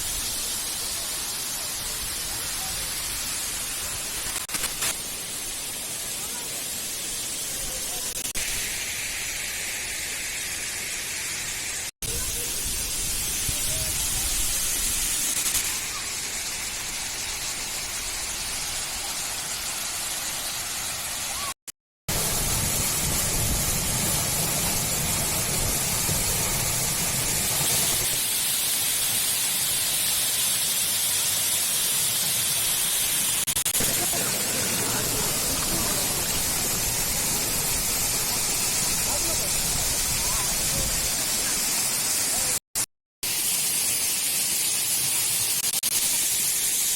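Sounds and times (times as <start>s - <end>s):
water rushing at dam: 0.0s - 42.6s.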